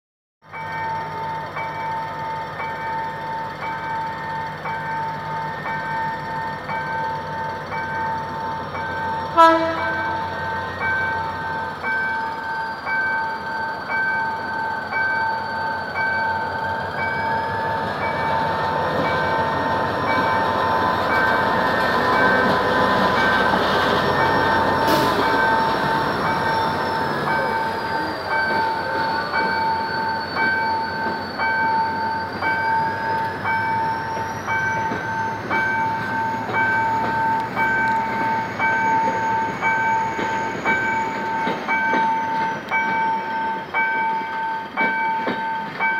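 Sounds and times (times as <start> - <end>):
diesel locomotive rumbling: 0.4 - 45.9
level-crossing warning alarm: 0.5 - 45.9
train wheels clattering: 17.0 - 45.9.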